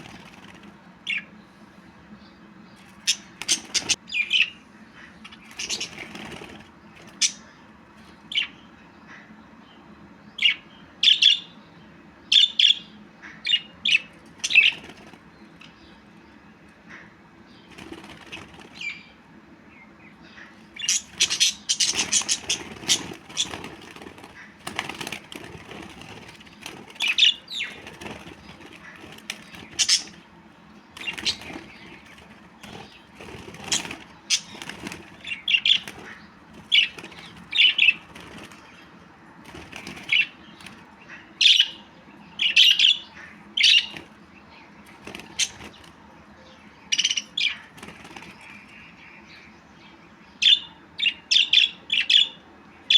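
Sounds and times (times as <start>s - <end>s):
budgerigars chirping: 2.7s - 7.6s, 12.3s - 16.0s, 20.1s - 38.9s, 39.6s - 45.8s, 46.4s - 49.2s, 50.4s - 52.9s.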